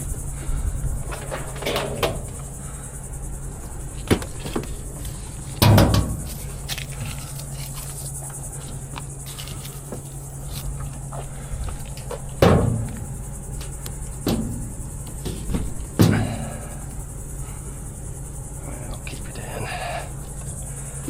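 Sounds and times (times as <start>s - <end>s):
insects chirring: 0.0s - 21.0s
low hum: 0.0s - 21.0s
heavy thuds with rattle: 5.5s - 7.3s, 11.1s - 17.0s.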